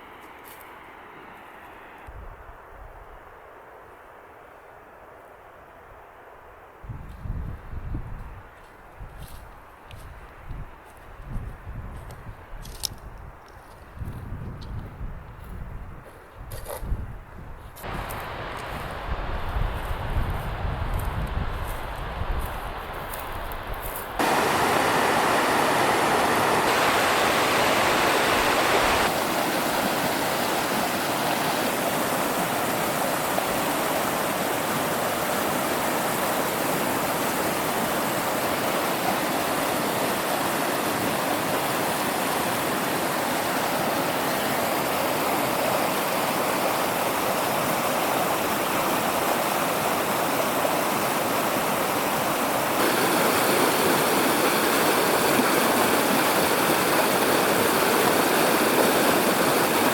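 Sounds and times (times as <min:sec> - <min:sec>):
mountain river flowing: 0:17.8 - 0:59.9.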